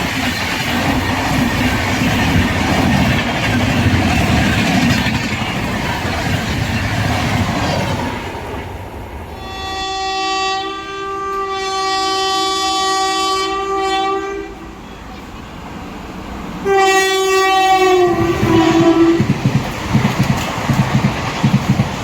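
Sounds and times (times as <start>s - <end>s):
train wheels clattering: 0.0s - 8.6s, 18.0s - 22.0s
train horn blasts: 9.4s - 15.0s, 16.6s - 19.3s.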